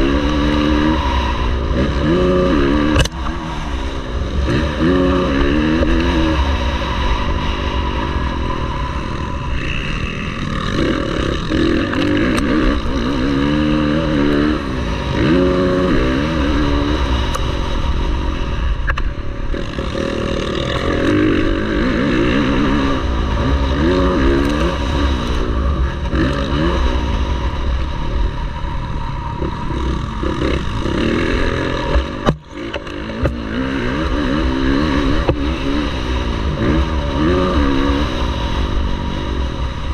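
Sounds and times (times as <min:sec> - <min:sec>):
constant low rumble: 0:00.0 - 0:39.9
motocross bike engines revving: 0:00.0 - 0:39.9.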